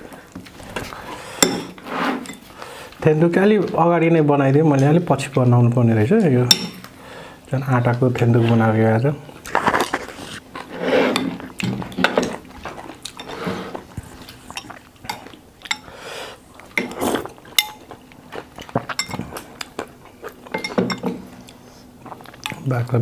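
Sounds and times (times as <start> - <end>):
cutlery scraping: 0.8 - 2.5, 9.5 - 12.4
cutlery clinking on plates: 20.5 - 21.2.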